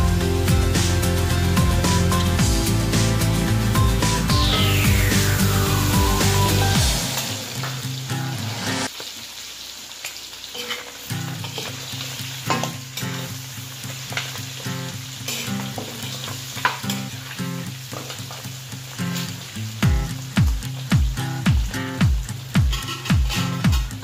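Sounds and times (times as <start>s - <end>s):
meat sizzling in hot oil: 0.0s - 24.0s
metal spatula scraping a pan: 15.3s - 17.1s, 22.7s - 23.9s.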